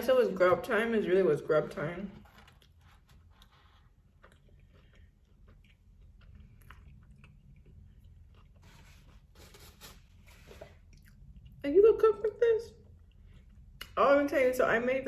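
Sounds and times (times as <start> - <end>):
low room hum: 0.0 - 15.0
chewing with wet mouth clicks: 2.5 - 8.7, 10.8 - 11.6.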